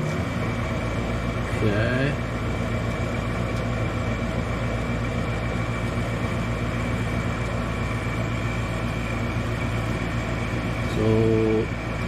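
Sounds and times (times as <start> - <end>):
furnace motor hum: 0.0 - 12.0.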